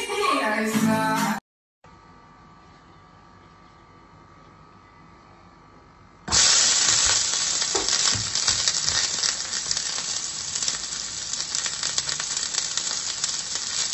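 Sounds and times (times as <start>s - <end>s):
food sizzling in hot oil: 6.3s - 13.9s.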